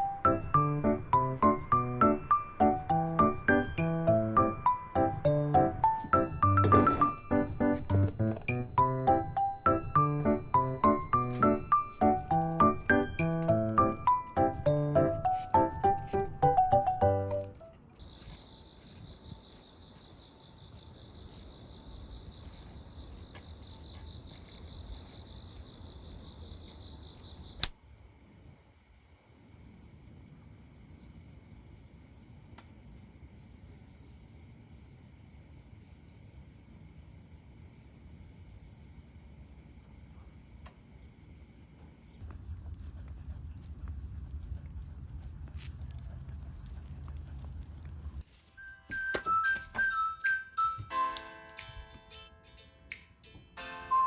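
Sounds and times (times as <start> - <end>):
insects shrilling: 18.0 - 27.7
insect chirring: 18.0 - 27.8.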